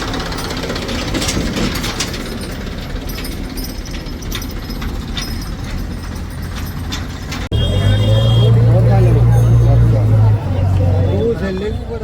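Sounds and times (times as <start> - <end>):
metallic clicks and rattles: 0.0 - 7.5
diesel engine running: 0.0 - 12.0.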